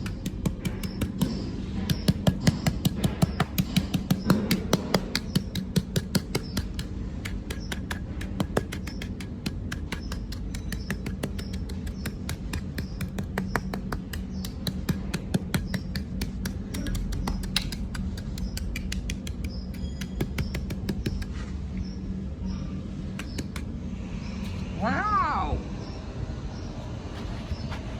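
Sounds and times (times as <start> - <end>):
sharp clicks and ticks: 0.0 - 21.3, 23.2 - 23.7.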